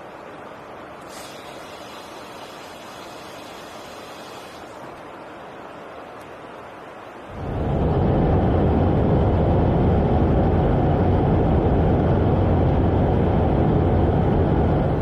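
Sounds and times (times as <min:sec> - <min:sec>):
jet engine roar: 0:07.2 - 0:15.0.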